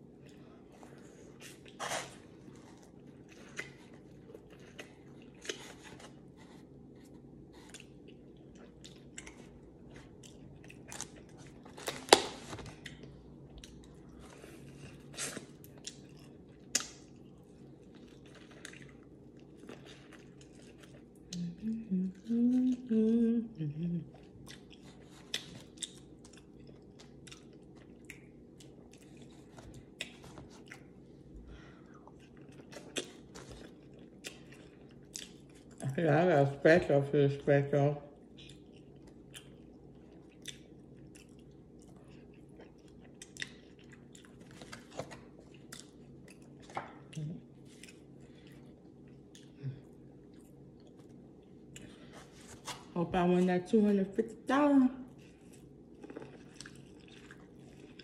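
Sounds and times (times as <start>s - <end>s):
wet chewing and lip smacks: 2.6s - 6.2s, 7.2s - 21.4s, 24.3s - 31.2s, 31.9s - 35.8s, 38.2s - 52.1s
person humming: 21.3s - 24.2s.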